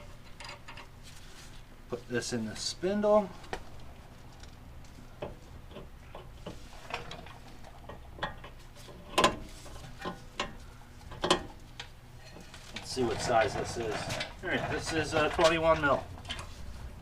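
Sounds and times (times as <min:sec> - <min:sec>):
metal parts clicking and knocking: 0:00.0 - 0:00.9.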